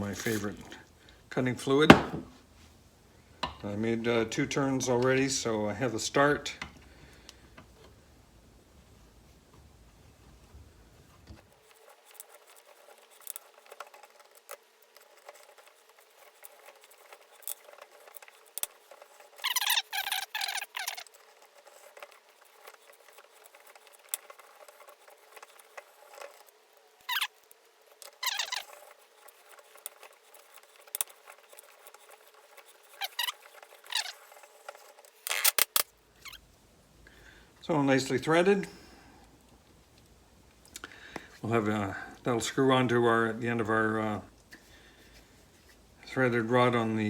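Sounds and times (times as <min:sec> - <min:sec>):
squeaky metal scraping: 0:15.0 - 0:36.4.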